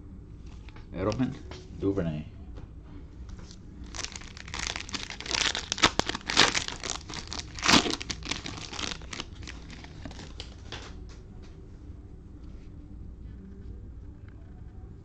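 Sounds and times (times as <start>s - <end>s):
cellophane wrapping crinkling and tearing: 3.8s - 10.9s.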